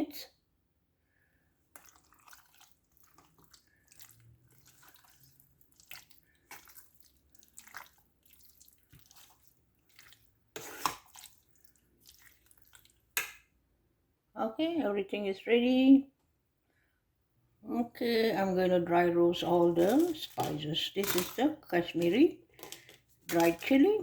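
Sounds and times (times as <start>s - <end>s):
wet squelching of mixing meat: 1.7s - 13.3s, 19.2s - 24.0s.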